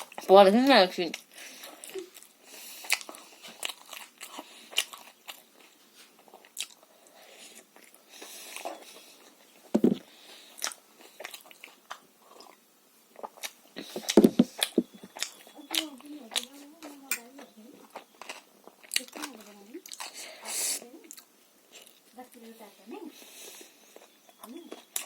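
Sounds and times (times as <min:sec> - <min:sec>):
chewing and lip smacks: 0:01.1 - 0:20.2, 0:23.5 - 0:25.0
knocks: 0:09.8 - 0:10.0, 0:14.2 - 0:14.9.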